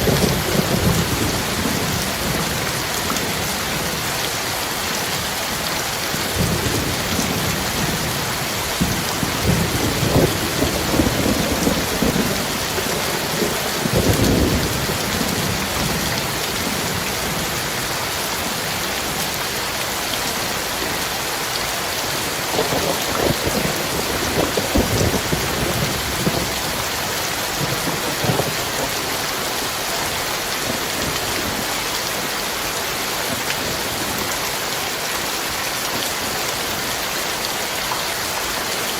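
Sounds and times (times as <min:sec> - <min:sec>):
thunder rumbling: 0:00.0 - 0:04.0, 0:06.2 - 0:17.6, 0:22.5 - 0:29.3
heavy rain pouring: 0:00.0 - 0:38.9.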